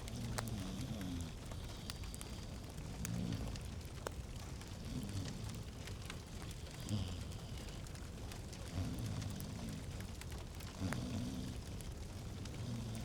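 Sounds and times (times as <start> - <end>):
wood fire crackling in fireplace: 0.0 - 13.0.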